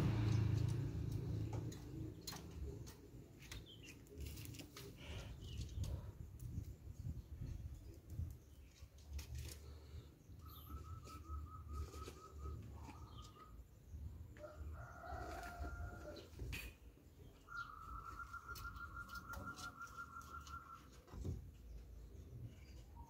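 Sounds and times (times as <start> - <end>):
bird trilling: 17.5 - 21.0.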